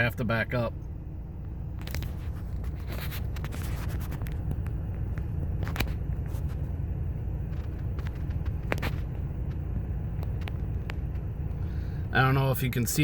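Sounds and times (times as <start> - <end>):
car engine and tyres rumbling: 0.0 - 13.0
clicks and scrapes: 1.8 - 4.7.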